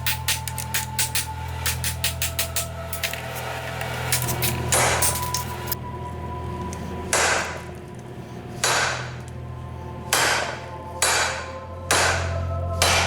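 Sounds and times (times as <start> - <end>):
hammer striking metal on anvil: 4.1 - 5.5, 7.1 - 7.6, 8.6 - 9.2, 10.1 - 13.0.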